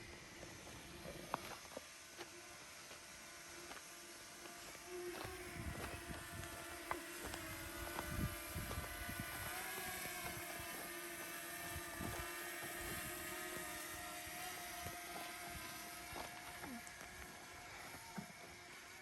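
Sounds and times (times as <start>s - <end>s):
steady motor drone: 0.0s - 19.0s.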